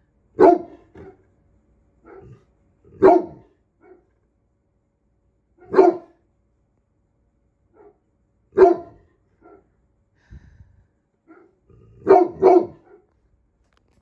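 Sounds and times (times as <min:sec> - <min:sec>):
dog barking deeply: 0:00.4 - 0:01.3, 0:02.0 - 0:04.1, 0:05.6 - 0:06.2, 0:07.8 - 0:09.7, 0:11.2 - 0:13.1.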